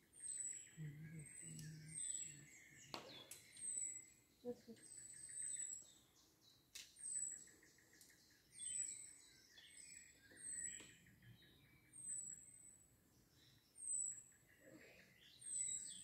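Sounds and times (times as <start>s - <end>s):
songbirds chirping and trilling: 0.0s - 16.0s.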